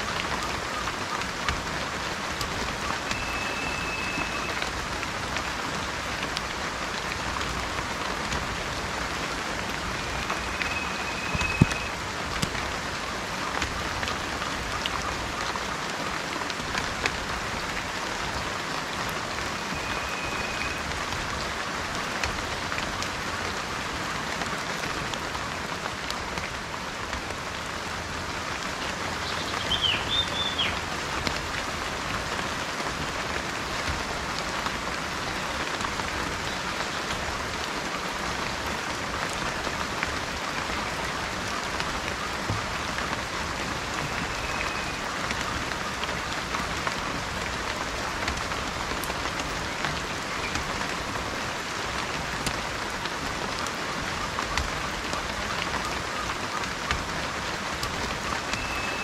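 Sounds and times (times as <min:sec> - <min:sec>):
raindrops ticking: 0:00.0 - 0:59.0
steady rain: 0:00.0 - 0:59.0
bird warbling call: 0:02.8 - 0:04.6, 0:09.9 - 0:12.0, 0:29.2 - 0:30.8, 0:58.5 - 0:59.0
bird whistling: 0:03.1 - 0:04.6, 0:10.0 - 0:11.9, 0:19.8 - 0:20.8, 0:29.3 - 0:30.8, 0:44.2 - 0:45.0, 0:58.5 - 0:59.0.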